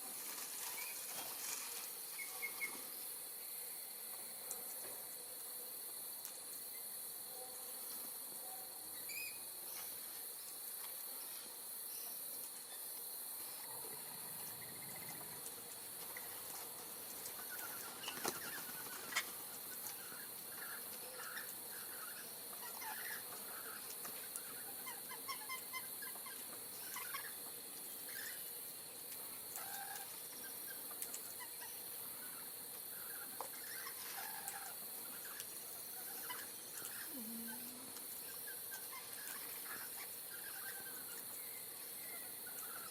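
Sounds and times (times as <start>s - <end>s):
high-pitched insect drone: 36.8s - 38.9s.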